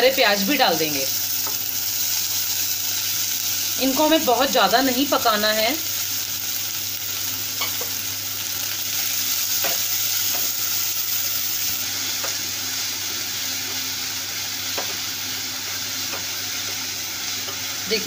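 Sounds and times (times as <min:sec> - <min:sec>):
onions sizzling in hot fat: 0:00.0 - 0:18.0.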